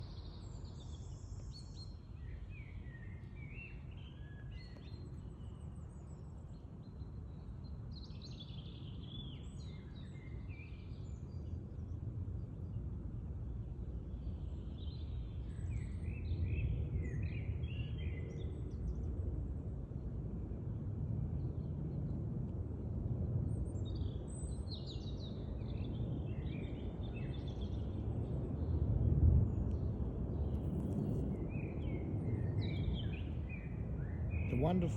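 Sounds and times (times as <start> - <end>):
songbirds chirping: 29.7 - 34.9
low outdoor rumble: 34.5 - 34.9.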